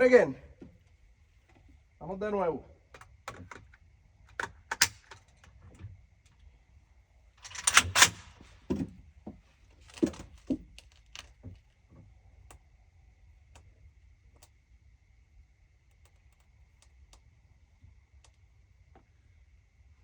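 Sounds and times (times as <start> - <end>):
rifle and gear rattling: 7.4 - 9.0, 9.6 - 11.4.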